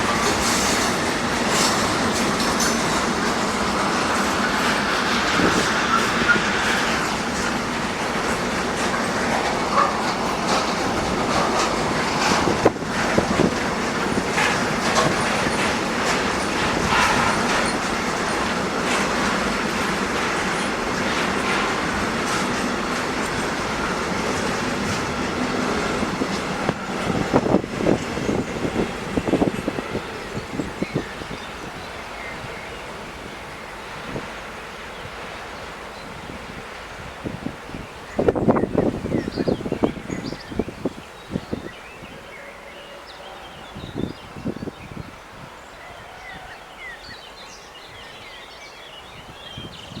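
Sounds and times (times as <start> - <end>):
train wheels clattering over rail joints: 0.0 - 41.7.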